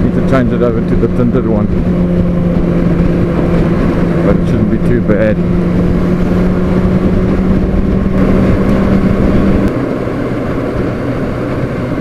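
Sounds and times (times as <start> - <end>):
motorcycle engine running: 0.0 - 12.0
wind rush: 0.0 - 12.0.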